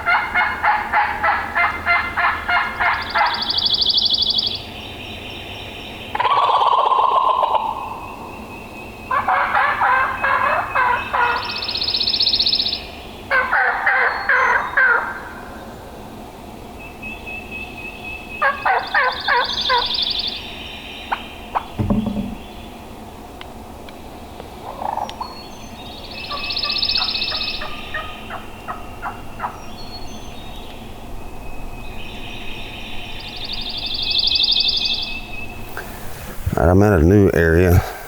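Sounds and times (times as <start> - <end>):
turkey gobbling: 9.1 - 11.4.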